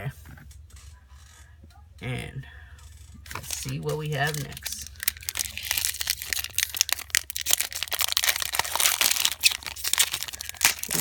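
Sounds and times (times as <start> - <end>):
foil wrapper crinkling and tearing: 3.3 - 11.0.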